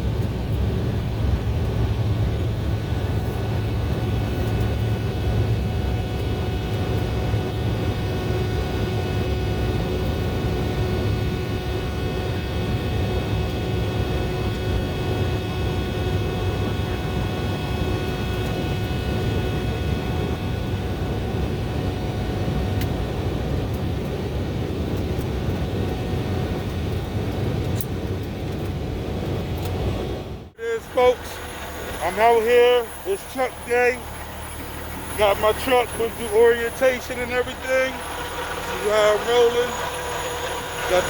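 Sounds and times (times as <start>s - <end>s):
jet engine drone in cabin: 0.0s - 41.0s
steady whining tones: 30.5s - 41.0s.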